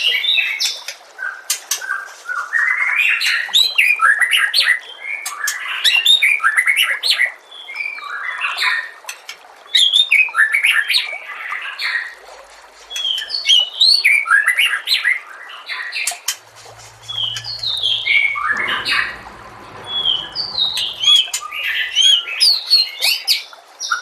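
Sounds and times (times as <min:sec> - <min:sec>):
low hum: 0:16.4 - 0:22.6.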